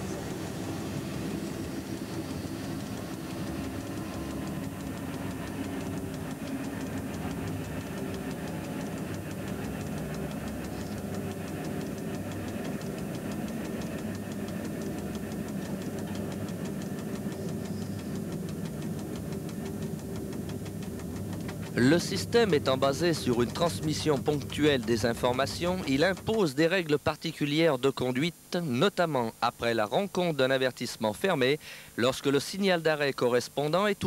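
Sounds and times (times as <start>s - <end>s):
train rumbling on track: 0.0s - 26.7s.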